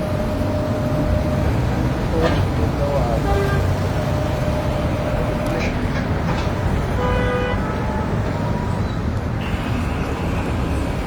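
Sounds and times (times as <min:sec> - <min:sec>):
busy road traffic: 0:00.0 - 0:11.0
vehicle horn: 0:03.2 - 0:03.8, 0:07.0 - 0:08.1.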